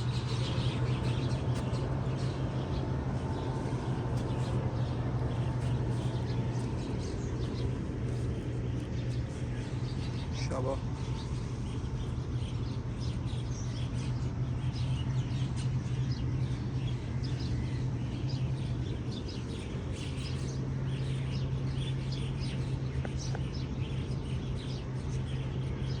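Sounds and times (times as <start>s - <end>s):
small birds chirping: 0.0s - 26.0s
steady low hum: 0.0s - 26.0s.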